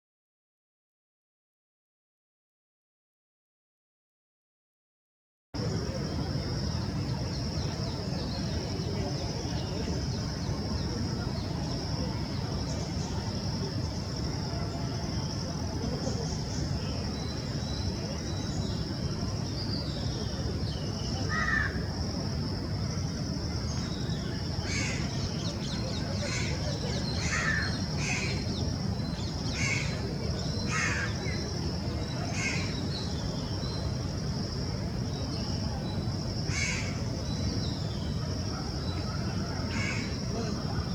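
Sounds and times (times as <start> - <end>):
crows cawing: 21.3 - 21.8, 27.2 - 28.2, 36.5 - 37.0.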